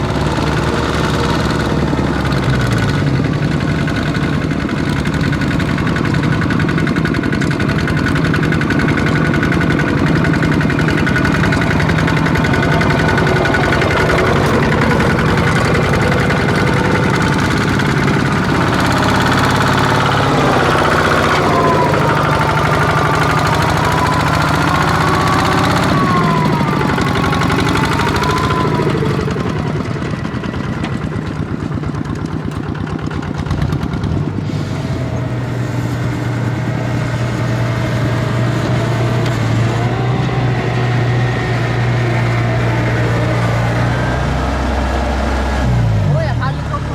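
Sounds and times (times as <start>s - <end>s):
tractor engine running: 0.0s - 46.9s
wavering whine: 10.3s - 31.2s.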